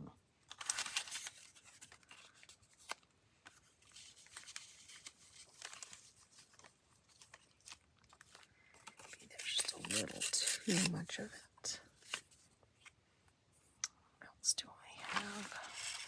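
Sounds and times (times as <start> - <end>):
paper rustling: 0.5 - 11.2, 15.0 - 16.0.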